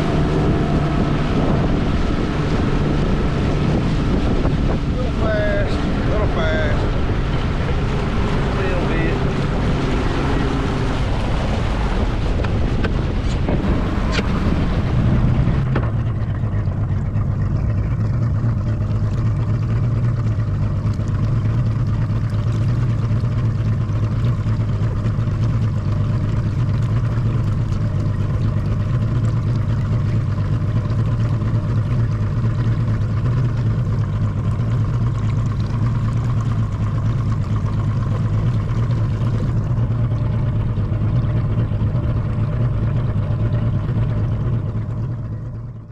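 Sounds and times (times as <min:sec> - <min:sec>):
outboard motor running: 0:00.0 - 0:45.9
water rushing: 0:00.0 - 0:45.9
wind: 0:00.0 - 0:45.9.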